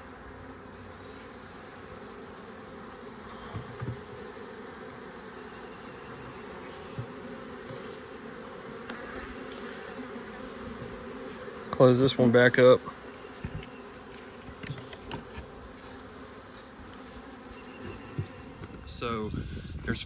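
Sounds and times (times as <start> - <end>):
bees buzzing: 0.0 - 19.0
soft thumps: 3.5 - 4.3.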